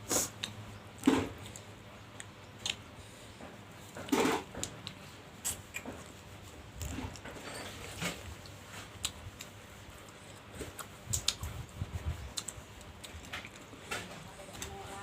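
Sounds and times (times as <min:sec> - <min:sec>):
chewing with wet mouth clicks: 0:00.4 - 0:02.9, 0:04.0 - 0:06.2, 0:08.3 - 0:14.0.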